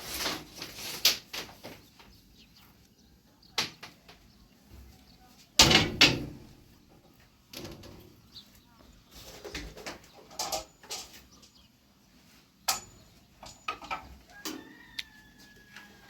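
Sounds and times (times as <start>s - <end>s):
sharp knocks and bangs: 5.6s - 6.6s.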